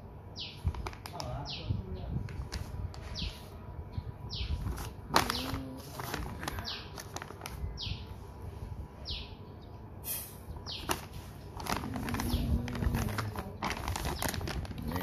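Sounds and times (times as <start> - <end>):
plastic bag crinkling: 4.6 - 7.8, 10.8 - 15.0.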